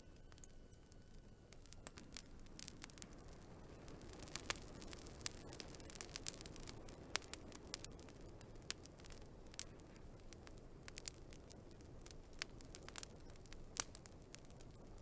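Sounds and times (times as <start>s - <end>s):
soft rush of burning logs: 0.0s - 15.0s
wood fire crackling and popping: 0.0s - 15.0s.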